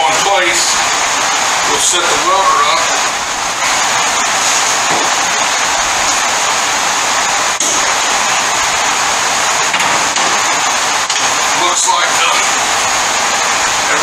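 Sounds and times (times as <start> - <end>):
loud hiss: 0.0 - 14.0.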